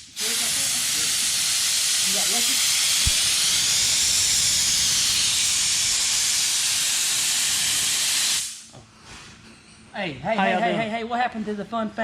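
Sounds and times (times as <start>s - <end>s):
loud steady hiss: 0.0s - 8.7s.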